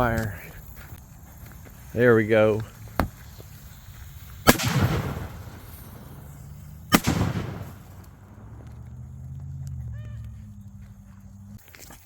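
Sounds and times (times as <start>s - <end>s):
firework bangs: 2.6s - 9.1s.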